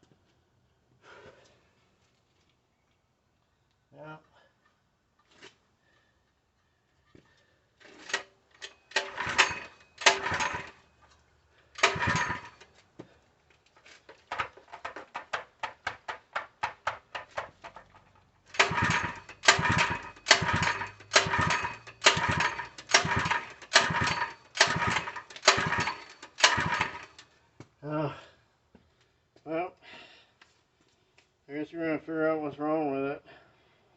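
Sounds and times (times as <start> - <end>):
engine pull-start rope pulls: 7.8 - 12.8, 13.7 - 27.3.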